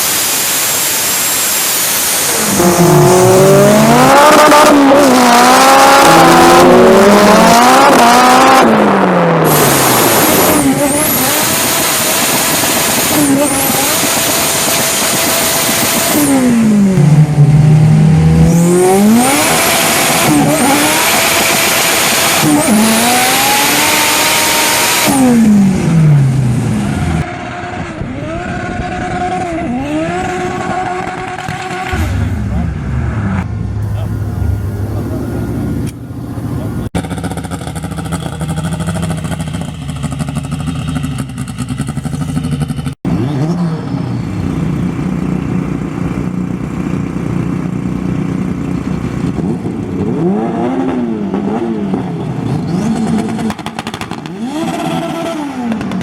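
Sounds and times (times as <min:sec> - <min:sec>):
car engine accelerating hard: 0:00.0 - 0:56.0.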